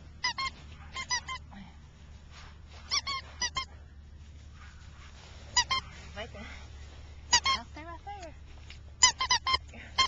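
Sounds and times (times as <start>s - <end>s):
puppies squealing: 0.1s - 1.5s, 2.8s - 3.9s, 4.6s - 6.0s, 7.3s - 7.7s, 9.0s - 10.0s.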